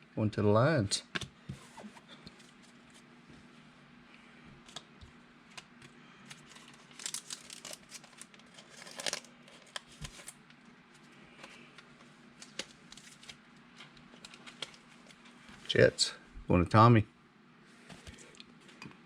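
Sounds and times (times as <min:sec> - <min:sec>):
card packaging crinkling: 0:05.5 - 0:10.6, 0:12.4 - 0:15.3.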